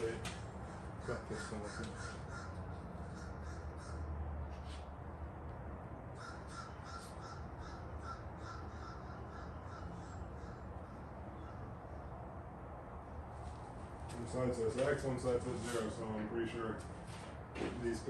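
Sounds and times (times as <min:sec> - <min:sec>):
bird calling: 0:00.6 - 0:04.1, 0:06.2 - 0:12.1.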